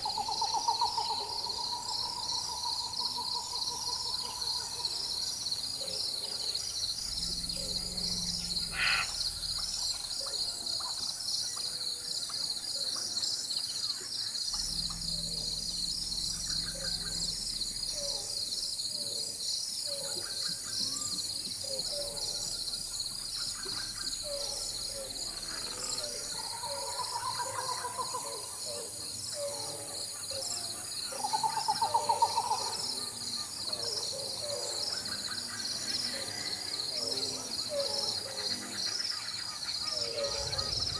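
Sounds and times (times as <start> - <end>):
bird calls: 0.0 - 40.9
high-pitched insect chorus: 0.0 - 40.9
distant thunder rumbling: 14.5 - 18.6, 39.9 - 40.9.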